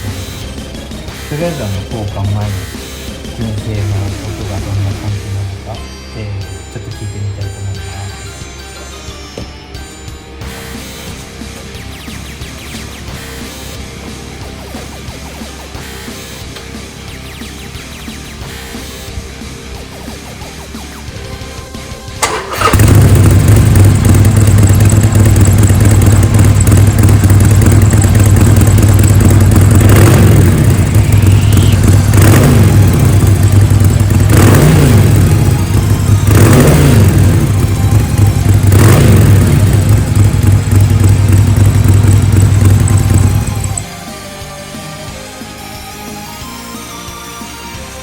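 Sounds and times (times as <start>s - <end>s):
motorcycle engine idling: 22.2s - 43.9s
motorcycle throttle blips: 22.2s - 43.9s.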